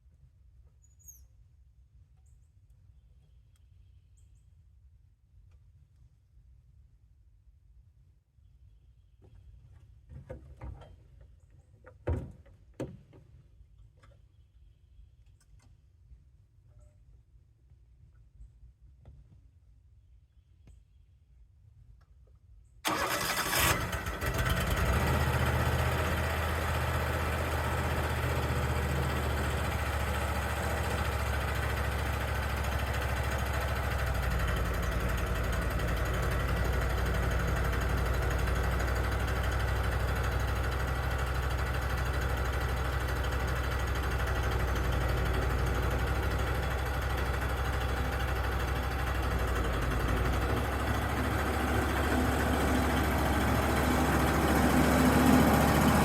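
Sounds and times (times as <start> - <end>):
sawmill engine idling: 22.8 - 56.0.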